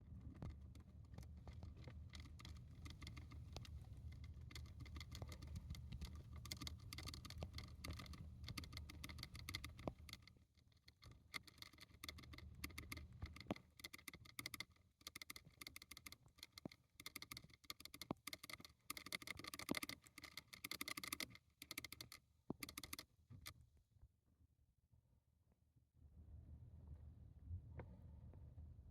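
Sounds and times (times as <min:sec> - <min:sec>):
hamster licking clicks: 0:01.6 - 0:10.3, 0:10.9 - 0:23.0.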